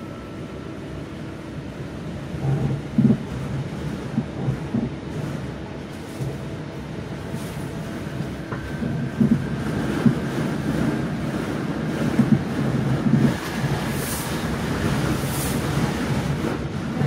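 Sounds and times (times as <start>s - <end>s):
rumble of wheels on rail: 0.0s - 17.0s
thumps of wheels on rail joints: 8.5s - 17.0s.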